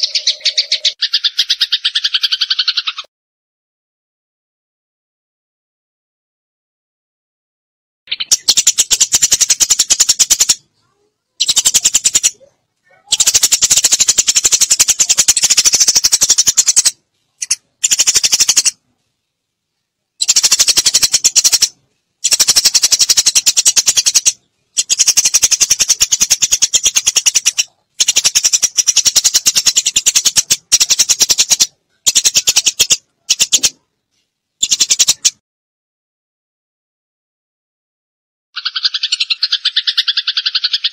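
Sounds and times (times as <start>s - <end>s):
sparrows chirping: 0.0s - 3.1s, 8.1s - 18.8s, 19.8s - 33.8s, 34.6s - 35.4s, 38.6s - 40.9s.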